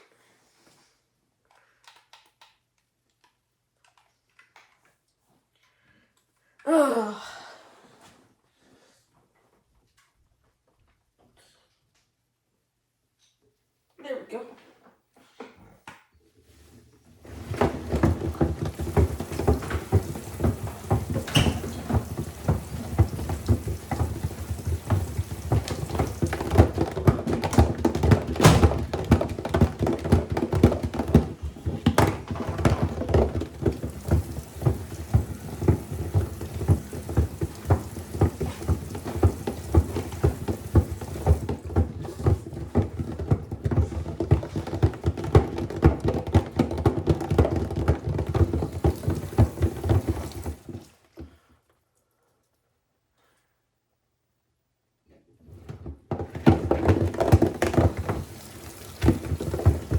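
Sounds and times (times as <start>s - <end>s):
washer water sloshing: 17.2s - 51.2s, 55.6s - 59.9s
calculator clattering in drum: 17.3s - 50.8s, 56.2s - 59.9s.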